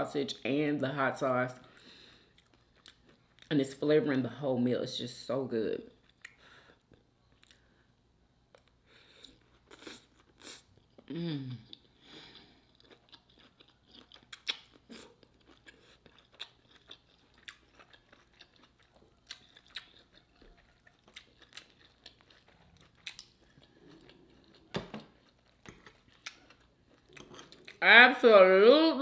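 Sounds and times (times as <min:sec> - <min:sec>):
wet chewing with crunches: 0:11.7 - 0:27.8.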